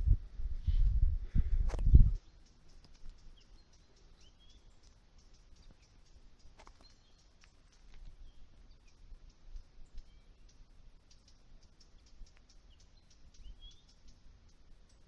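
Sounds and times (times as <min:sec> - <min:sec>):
wind bump on microphone: 0:00.0 - 0:02.3
faint bird chirps: 0:01.9 - 0:15.0.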